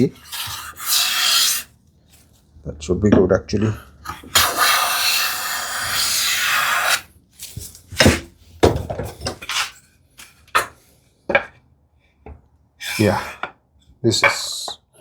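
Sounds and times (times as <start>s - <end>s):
hand plane scraping wood: 0.0s - 1.7s, 3.6s - 7.0s, 9.3s - 9.8s, 12.8s - 13.5s
wooden knocks and clatters: 7.9s - 9.6s.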